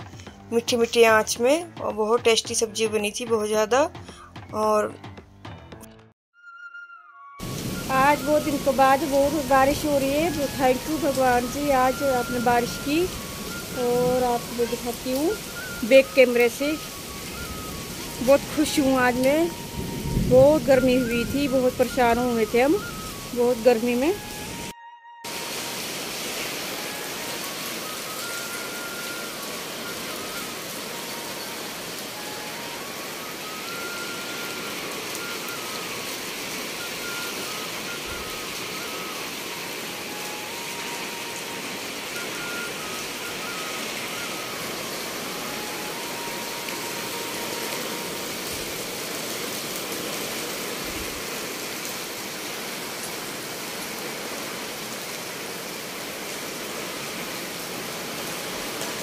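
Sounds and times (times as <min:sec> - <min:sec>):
heavy rain falling: 0:07.4 - 0:24.7, 0:25.3 - 0:59.0.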